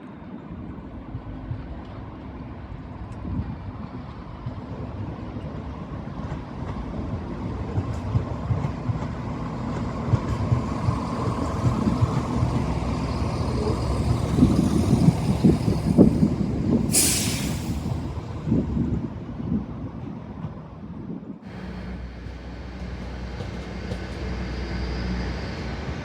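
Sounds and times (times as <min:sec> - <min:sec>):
train engine and wheels rumbling: 0:00.0 - 0:26.0
short sharp hiss: 0:16.9 - 0:17.9.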